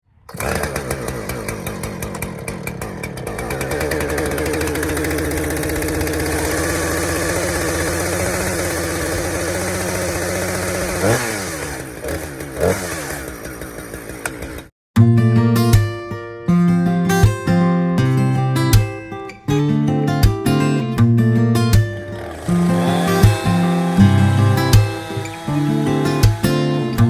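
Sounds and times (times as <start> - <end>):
chainsaw engine running: 0.3 - 14.7, 22.0 - 27.0.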